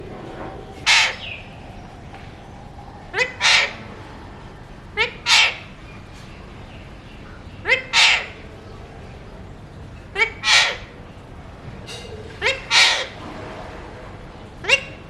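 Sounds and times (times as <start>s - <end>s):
parrot harsh calls: 0.8s - 2.0s, 3.1s - 4.2s, 4.8s - 6.0s, 7.6s - 8.5s, 10.1s - 11.0s, 12.3s - 13.2s.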